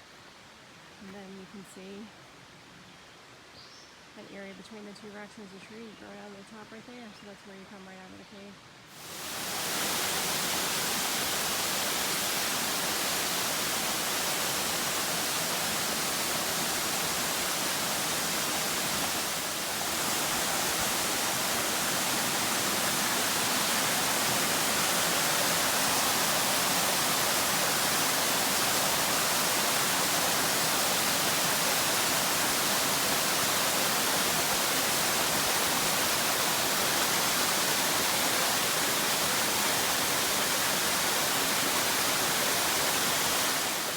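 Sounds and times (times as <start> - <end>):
waterfall rushing: 8.9 - 43.9.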